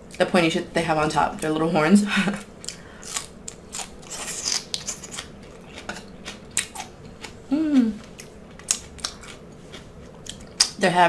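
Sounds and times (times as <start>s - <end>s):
crunching fried shrimp shell: 2.6s - 7.4s, 8.0s - 10.8s
person humming: 7.5s - 8.1s.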